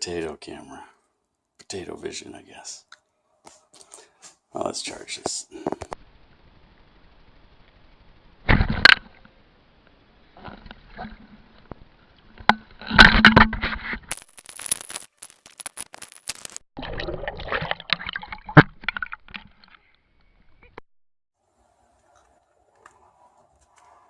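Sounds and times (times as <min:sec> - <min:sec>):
handling scraping and rustling: 0:12.8 - 0:16.6.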